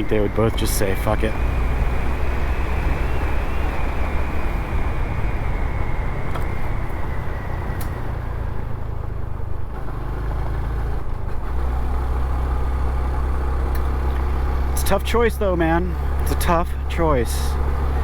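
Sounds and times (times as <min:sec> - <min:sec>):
wind noise: 0:00.0 - 0:08.2
motorcycle engine running: 0:00.0 - 0:18.0
road noise: 0:00.0 - 0:18.0.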